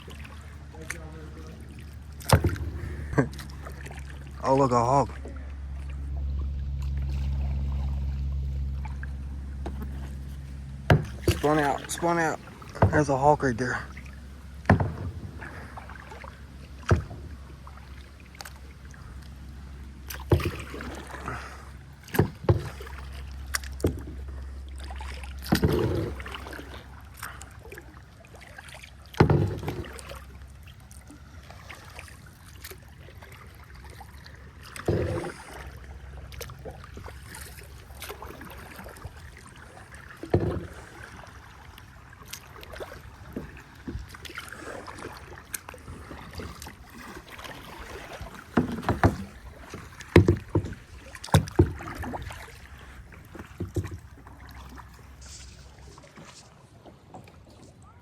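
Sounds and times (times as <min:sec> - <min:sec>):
steady low rumble: 0:00.0 - 0:28.3
paddle splashes and knocks: 0:00.0 - 0:58.0.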